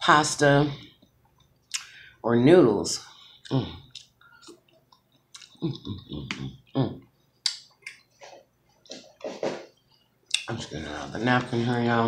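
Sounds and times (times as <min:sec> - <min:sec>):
mouth smacks and clicks: 0:01.0 - 0:02.0, 0:03.4 - 0:09.2, 0:09.9 - 0:10.5
person chewing noodles: 0:03.1 - 0:08.9.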